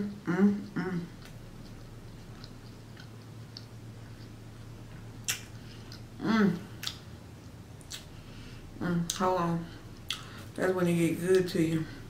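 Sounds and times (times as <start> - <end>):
person humming: 0.0 - 1.3, 6.2 - 6.8
faint low hum: 0.0 - 12.0
chewing with mouth closed: 0.6 - 8.2, 9.9 - 10.4
wet mouth clicks and smacks: 1.2 - 4.4, 5.2 - 6.1, 6.8 - 7.1, 7.8 - 8.1, 10.0 - 10.3.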